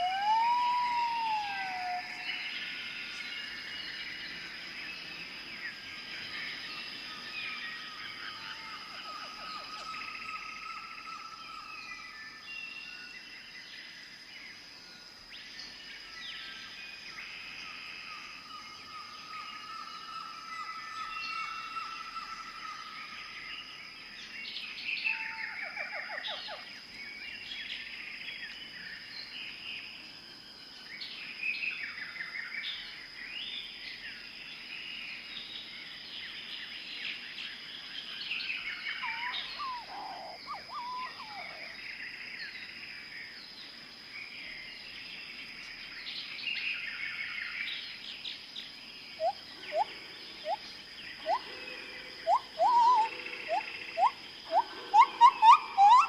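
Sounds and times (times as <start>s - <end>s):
birds chirping and trilling: 37.1s - 42.8s, 45.2s - 56.0s
upward-sweeping bird calls: 38.9s - 41.8s, 51.2s - 51.5s, 52.2s - 56.0s.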